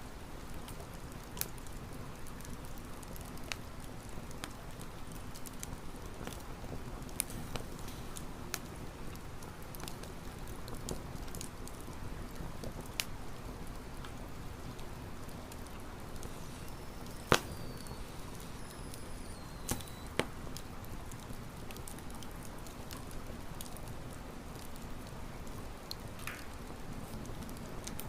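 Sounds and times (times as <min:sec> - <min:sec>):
campfire crackling and popping: 0:00.1 - 0:28.0
thin high whistle: 0:16.2 - 0:20.2.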